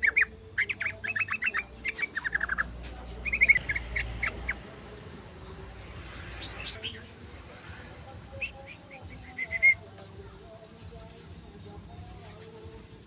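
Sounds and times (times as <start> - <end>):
bulbul chattering: 0.0 - 11.1.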